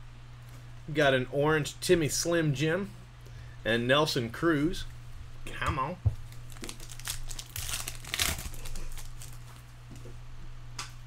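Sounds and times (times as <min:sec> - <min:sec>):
foil wrapper crinkling and tearing: 0:06.3 - 0:09.7.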